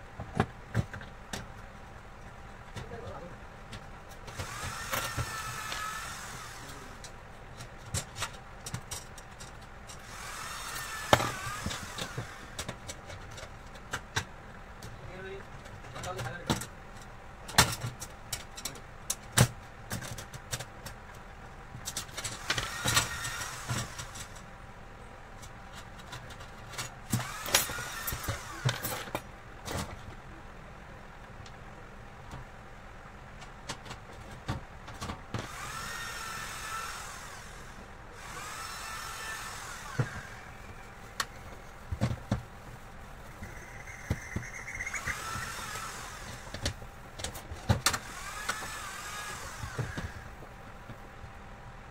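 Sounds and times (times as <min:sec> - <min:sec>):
small motor whining: 0:04.3 - 0:07.0, 0:10.0 - 0:12.6, 0:22.4 - 0:24.2, 0:27.1 - 0:28.9, 0:35.4 - 0:41.6, 0:43.5 - 0:46.8, 0:47.9 - 0:50.4
clicks and knocks of tools: 0:07.0 - 0:10.0, 0:15.6 - 0:21.2.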